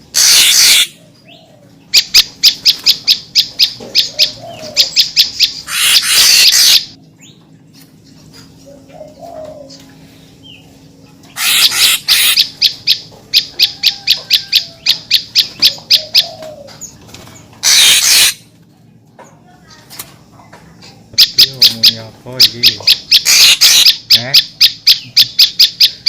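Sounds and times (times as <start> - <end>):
bird harsh rasping bursts: 0.1 - 1.0, 5.6 - 6.9, 11.4 - 12.6, 17.6 - 18.5, 23.1 - 24.1.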